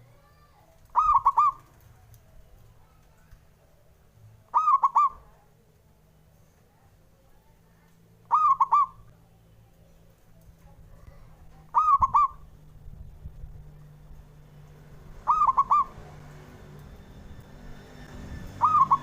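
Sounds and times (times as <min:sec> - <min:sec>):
dove cooing: 0:00.8 - 0:01.8, 0:04.5 - 0:05.4, 0:08.2 - 0:09.1, 0:11.6 - 0:12.5, 0:15.2 - 0:16.3, 0:18.6 - 0:19.0.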